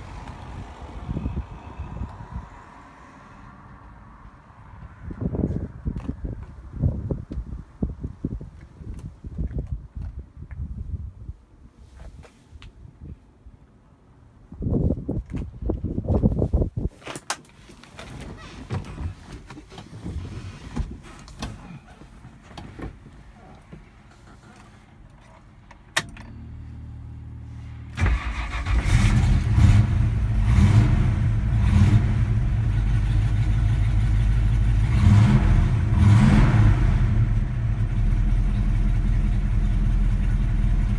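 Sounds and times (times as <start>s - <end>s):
car engine revving and idling: 26.5s - 40.9s.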